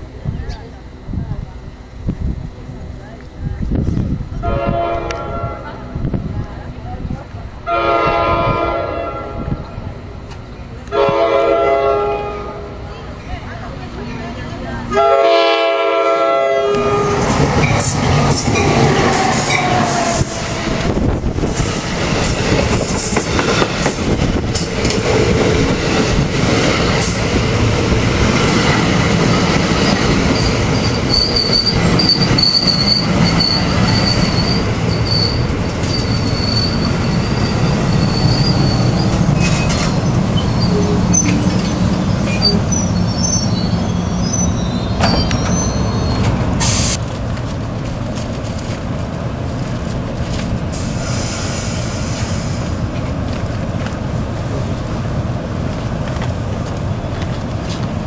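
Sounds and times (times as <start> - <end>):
train wheels rumbling on rails: 0.0 - 58.0
train horn blast: 4.4 - 6.1, 7.6 - 9.7, 10.9 - 12.8, 14.9 - 17.6, 18.6 - 21.0
thin high squeal: 31.1 - 47.0.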